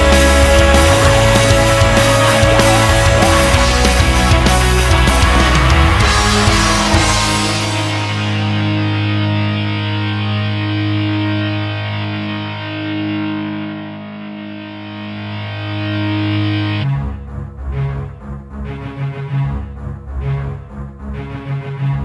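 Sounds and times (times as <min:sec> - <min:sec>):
distorted electric guitar rock music: 0:00.0 - 0:16.9.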